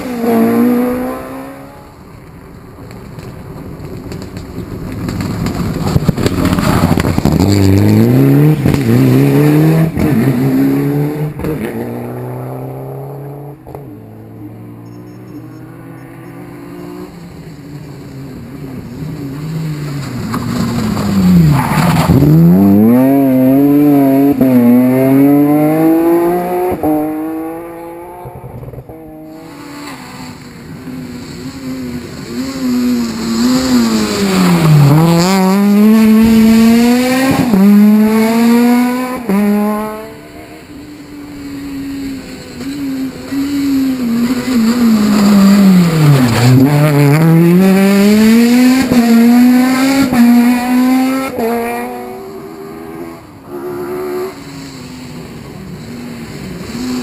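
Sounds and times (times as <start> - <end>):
rally car engines revving past: 0.0 - 2.2, 4.0 - 57.0
sharp cracks between gear shifts: 2.2 - 7.6.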